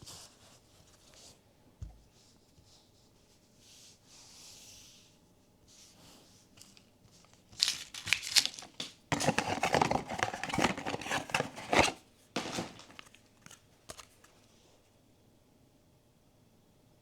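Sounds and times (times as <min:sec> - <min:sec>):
wrapper crinkling and tearing: 0:07.2 - 0:13.6.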